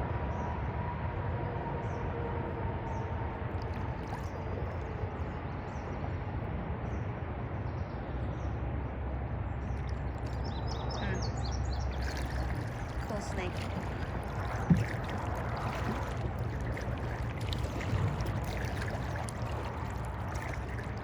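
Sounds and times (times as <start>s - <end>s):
low rumble: 8.8s - 21.0s.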